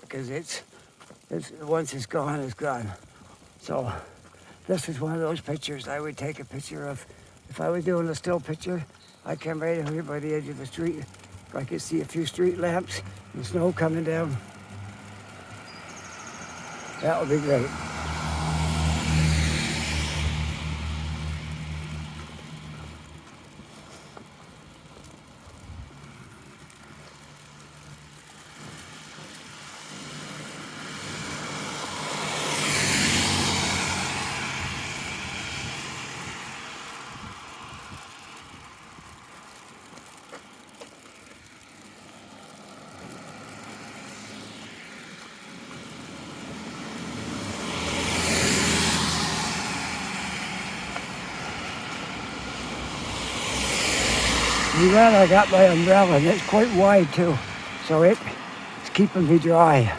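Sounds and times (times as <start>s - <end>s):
cars passing by: 0.0s - 59.9s.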